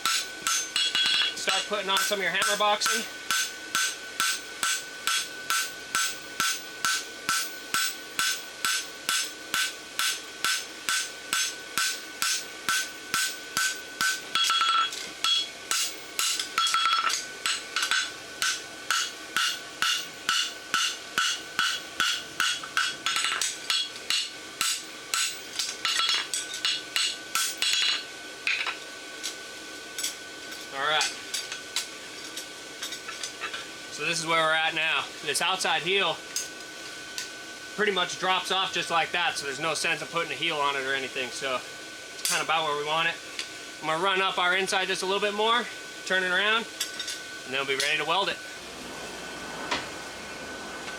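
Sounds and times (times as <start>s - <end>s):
hammer striking steel on anvil: 0.0s - 28.8s.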